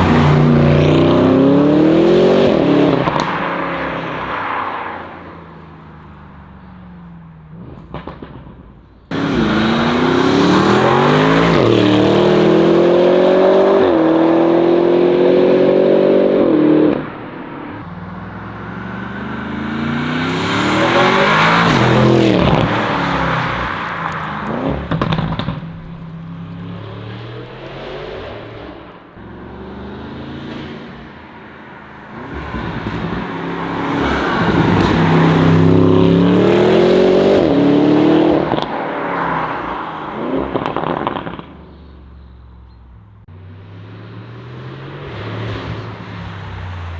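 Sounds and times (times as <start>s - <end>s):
car engine accelerating hard: 0.0s - 46.9s
exhaust pops: 5.3s - 12.6s, 17.8s - 29.4s, 38.3s - 43.8s.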